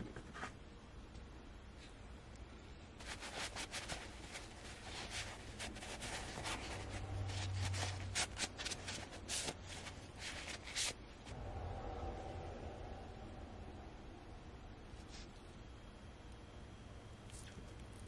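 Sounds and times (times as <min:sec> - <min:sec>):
paper towel rubbing and crinkling: 0:03.0 - 0:11.0.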